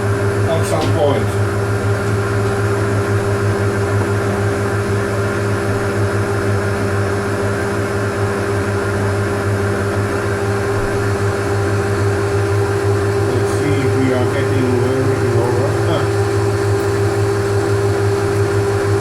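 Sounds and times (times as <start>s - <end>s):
metal lathe motor hum: 0.0s - 19.0s.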